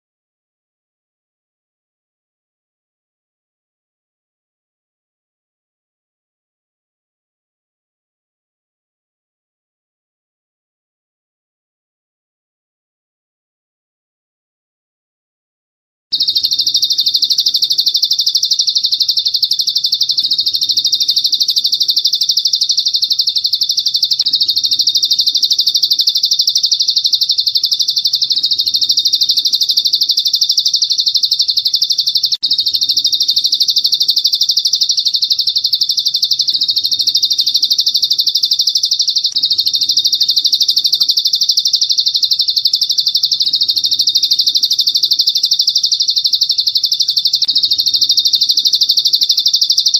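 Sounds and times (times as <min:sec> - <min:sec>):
songbird chirping trill: 0:16.2 - 0:49.9.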